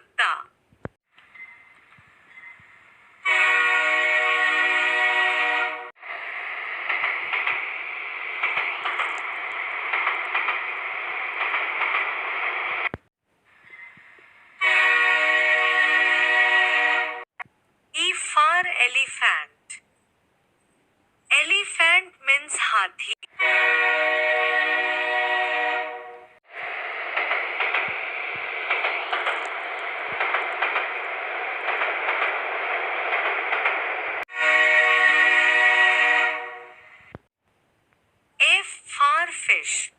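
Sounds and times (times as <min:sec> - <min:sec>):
train running with clatter: 0:01.2 - 0:13.1, 0:22.6 - 0:37.3
train horn blast: 0:03.2 - 0:06.0, 0:14.6 - 0:17.3, 0:23.3 - 0:26.4, 0:34.3 - 0:37.1.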